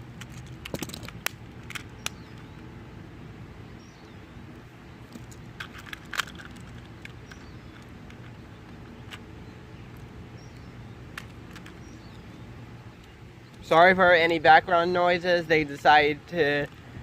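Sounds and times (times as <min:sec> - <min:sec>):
sharp clicks: 0:00.2 - 0:02.6.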